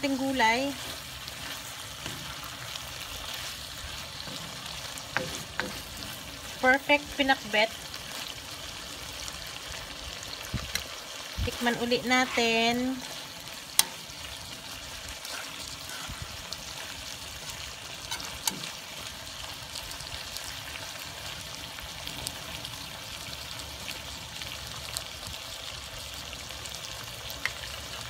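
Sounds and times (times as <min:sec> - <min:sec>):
food sizzling in a wok: 0:00.0 - 0:28.0
metal spoon clicking on pan: 0:13.7 - 0:14.0.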